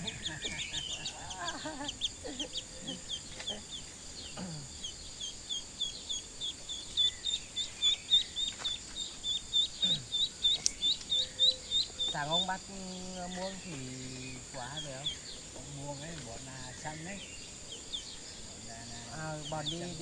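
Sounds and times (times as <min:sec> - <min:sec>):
bird peeping: 0:00.0 - 0:20.0
sharp click: 0:10.5 - 0:11.2.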